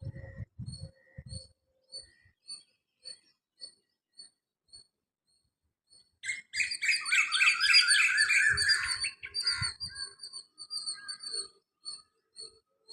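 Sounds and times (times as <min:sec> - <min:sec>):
robin singing: 0:05.9 - 0:12.9.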